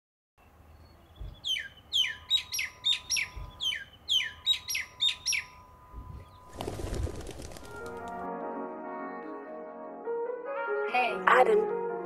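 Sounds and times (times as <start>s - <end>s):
bird calling with falling notes: 0.7s - 6.8s.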